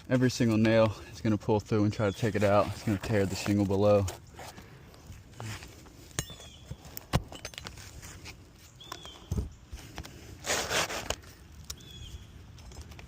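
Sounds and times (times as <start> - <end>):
shingle scraping tear: 10.1 - 11.9.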